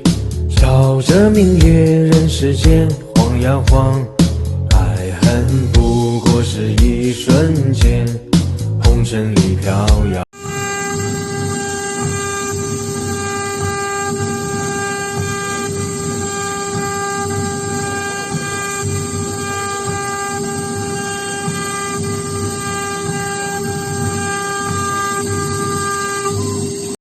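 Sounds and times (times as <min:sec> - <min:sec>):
rough cutting noise: 0:00.0 - 0:27.0
router spindle whine: 0:10.3 - 0:27.0.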